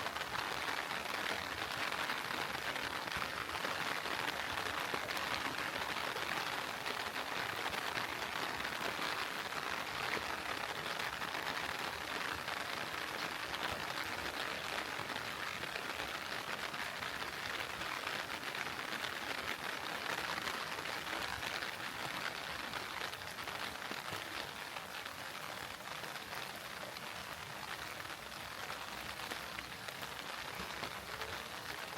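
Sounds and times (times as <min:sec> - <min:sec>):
heavy rain falling: 0:00.0 - 0:31.9.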